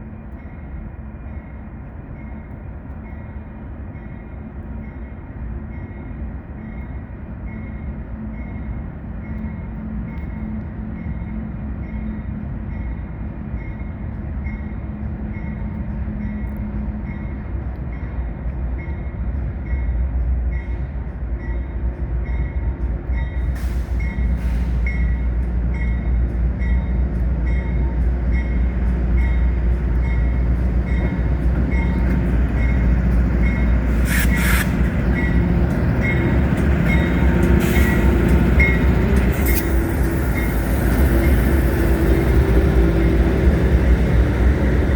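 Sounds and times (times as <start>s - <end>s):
freight train rumbling past: 0.0s - 44.9s
train wheel squeals: 23.1s - 44.9s.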